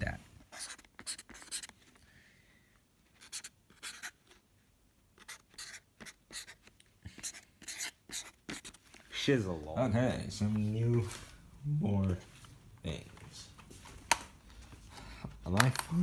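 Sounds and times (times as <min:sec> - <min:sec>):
marker drawing strokes: 0:00.4 - 0:01.9, 0:03.1 - 0:04.4, 0:05.2 - 0:09.2.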